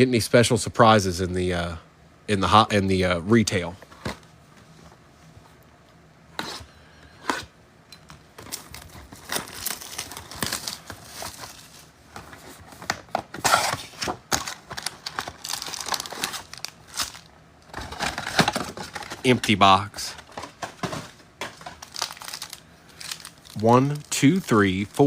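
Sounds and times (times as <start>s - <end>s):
plastic packaging snapping: 8.4s - 11.7s, 12.8s - 19.3s, 20.3s - 24.5s
plastic packaging crinkling: 8.4s - 25.0s.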